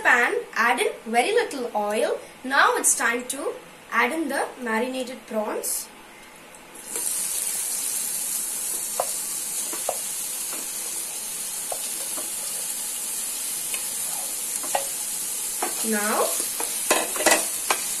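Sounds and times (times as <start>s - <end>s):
prawns sizzling in hot oil: 6.8s - 18.0s.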